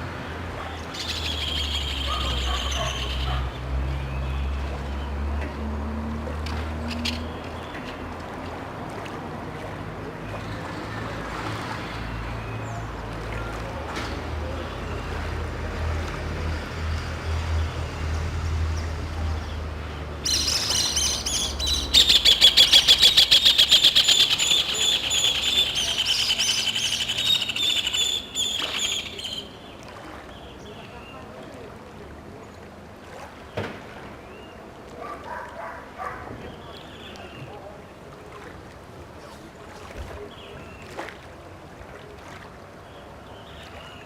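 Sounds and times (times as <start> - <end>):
chorus of birds chattering: 20.3 - 29.6.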